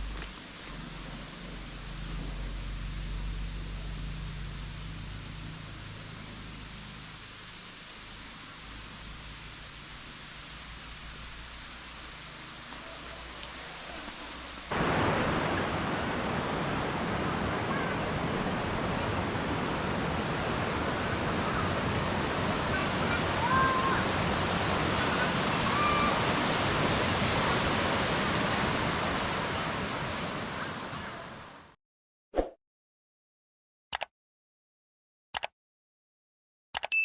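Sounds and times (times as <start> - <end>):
waterfall rushing: 5.6 - 31.7.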